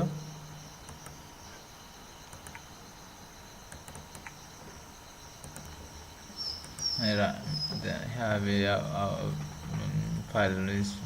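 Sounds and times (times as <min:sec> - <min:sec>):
faint ticks: 0:00.8 - 0:01.2, 0:02.2 - 0:02.7, 0:03.7 - 0:04.8, 0:05.4 - 0:07.0
high-pitched whine or trill: 0:06.3 - 0:10.5.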